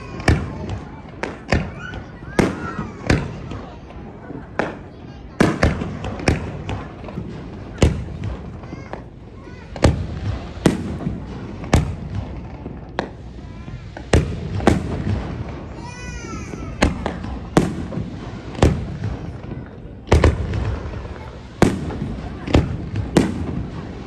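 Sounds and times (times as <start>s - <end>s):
fireworks bursting: 0.0s - 24.0s.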